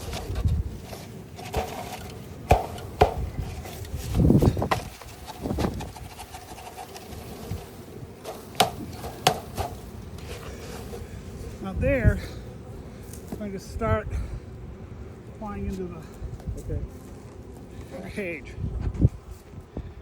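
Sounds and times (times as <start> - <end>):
wood scraping: 0.0 - 11.7
wooden knocks: 2.5 - 3.3.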